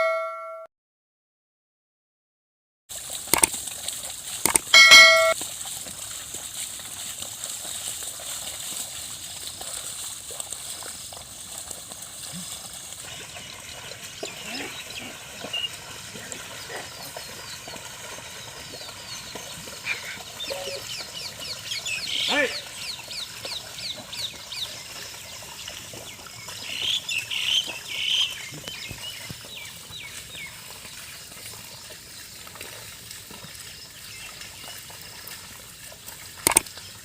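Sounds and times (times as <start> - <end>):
bell ringing: 0.0 - 0.7, 4.6 - 5.4
outdoor background noise: 2.9 - 37.0.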